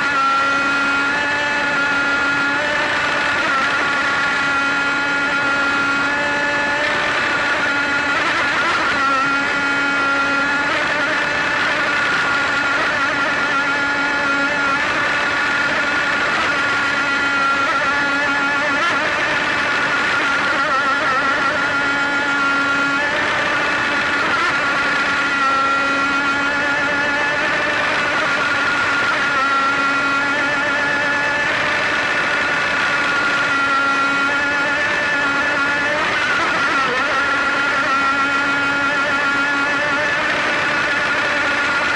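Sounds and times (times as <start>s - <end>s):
boat motor droning: 0.0s - 41.9s.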